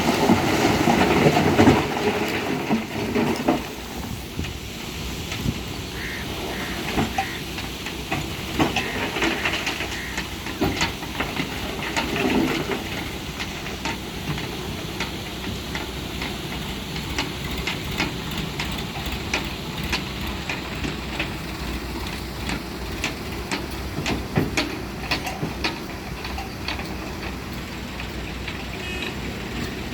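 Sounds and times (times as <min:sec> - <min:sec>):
diesel engine running: 0:00.0 - 0:29.9
machine clanks and knocks: 0:06.6 - 0:29.9.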